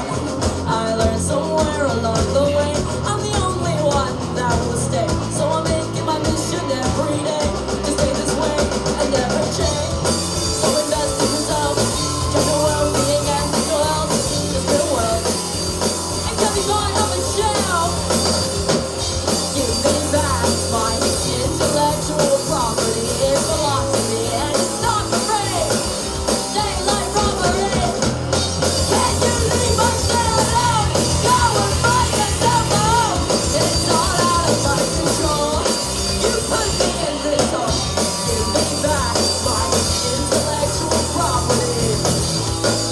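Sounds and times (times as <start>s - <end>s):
drum kit: 0.0s - 42.9s
live rock band playing: 0.0s - 42.9s
person singing: 0.0s - 42.9s.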